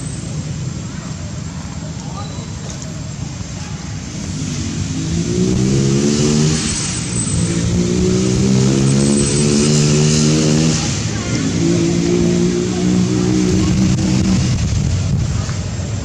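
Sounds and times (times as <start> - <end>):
engine revving: 4.0 - 15.6.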